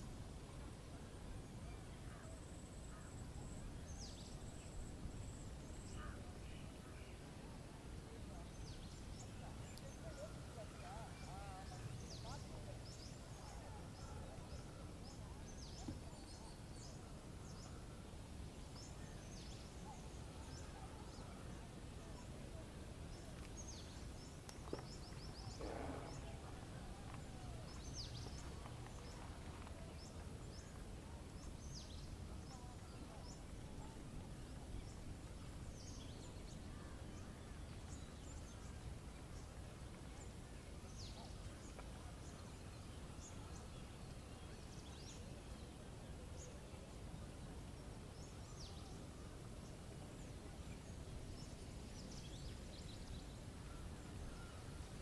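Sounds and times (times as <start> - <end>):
birds chirping: 23.1 - 46.6.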